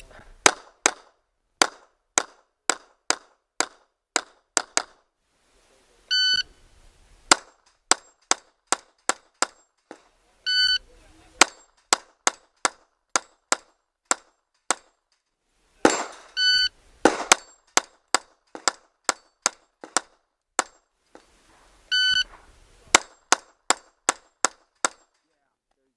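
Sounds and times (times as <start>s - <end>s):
pistol shots: 0.4s - 5.0s, 11.4s - 14.9s, 15.8s - 20.7s, 22.3s - 25.0s
shot timer beep: 6.1s - 6.6s, 10.5s - 10.8s, 16.3s - 16.7s, 21.9s - 22.3s.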